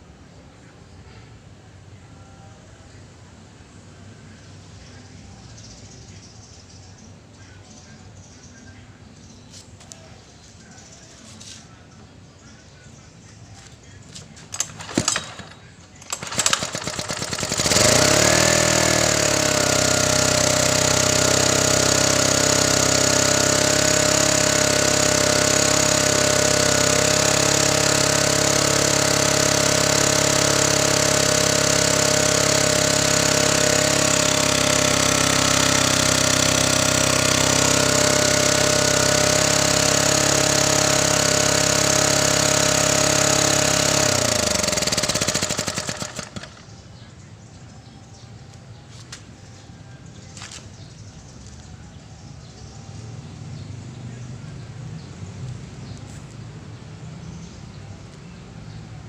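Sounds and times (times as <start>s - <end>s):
generator engine starting and running: 13.5s - 59.0s
engine clatters: 14.1s - 47.0s.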